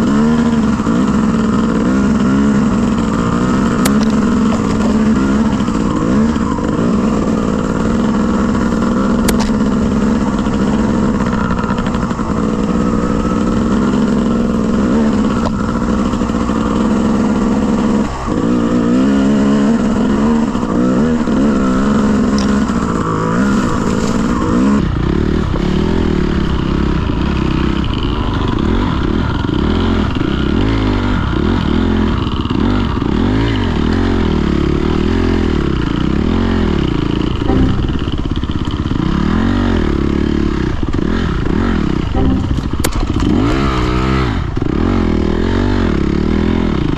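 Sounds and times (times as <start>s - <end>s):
dirt bike engine revving: 0.0s - 34.3s.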